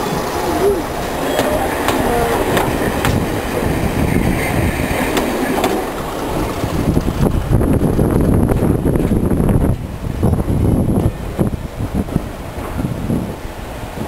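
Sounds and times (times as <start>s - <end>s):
wheels clicking over rail joints: 0.0s - 9.2s
wheels rumbling on rail: 0.0s - 14.0s.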